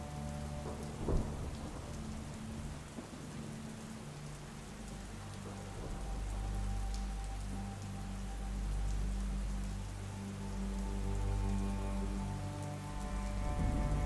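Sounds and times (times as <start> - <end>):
soft rain pattering: 0.0 - 14.0
sustained ambient music notes: 0.0 - 14.0
deep low rumble: 13.0 - 14.0.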